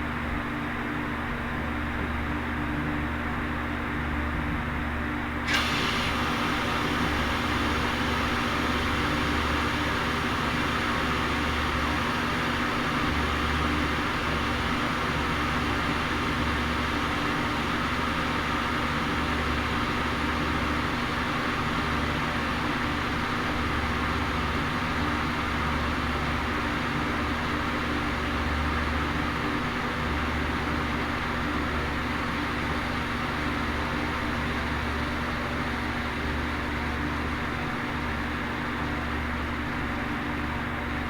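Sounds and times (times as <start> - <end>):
loud hiss: 5.5 - 13.1
steady motor hum: 5.5 - 20.1.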